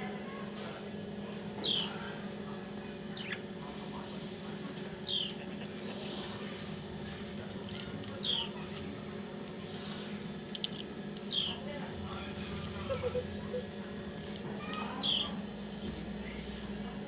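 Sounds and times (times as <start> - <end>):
budgie chirping: 5.0 - 6.1.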